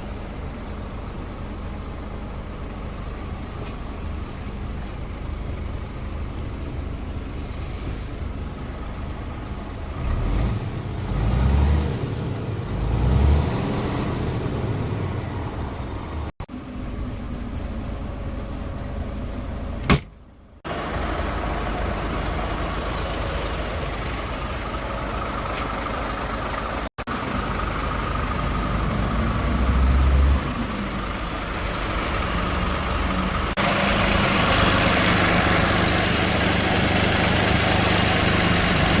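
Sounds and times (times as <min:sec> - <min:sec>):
diesel truck engine running: 0:00.0 - 0:39.0.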